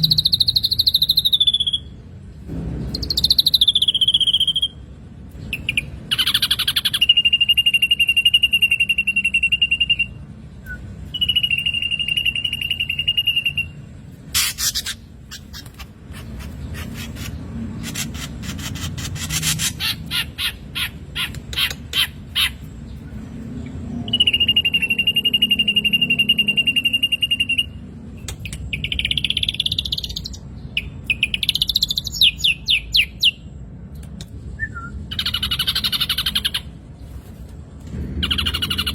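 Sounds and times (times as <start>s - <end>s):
bird chirping: 0.0s - 2.1s, 2.9s - 37.0s, 38.1s - 38.9s
bird whistling: 3.0s - 4.8s, 5.6s - 13.8s, 24.1s - 27.8s, 34.6s - 36.6s.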